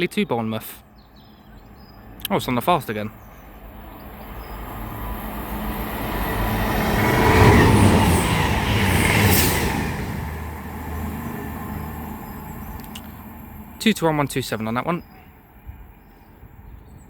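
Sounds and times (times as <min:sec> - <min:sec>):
train passing at speed: 0:03.2 - 0:16.7.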